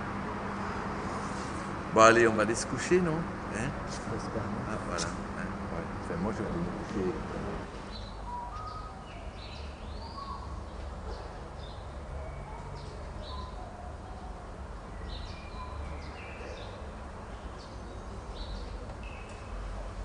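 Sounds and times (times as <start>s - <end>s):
small birds chirping: 7.8s - 20.0s.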